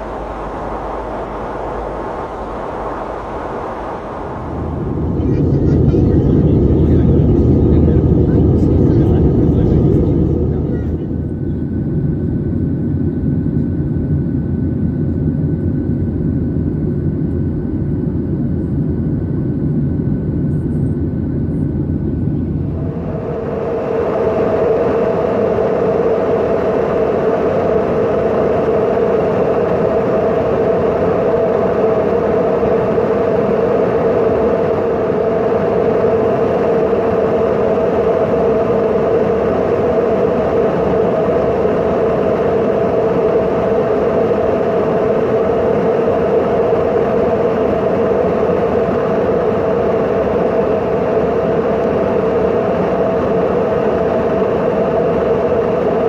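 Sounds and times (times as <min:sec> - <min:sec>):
aircraft engine drone: 0:00.0 - 0:56.0.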